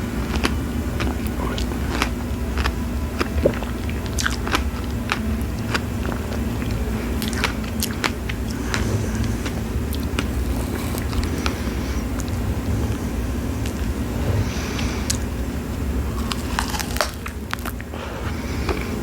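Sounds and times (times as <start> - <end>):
mouth chewing wet squelches: 0.0 - 12.5
steady low rumble: 0.0 - 19.0.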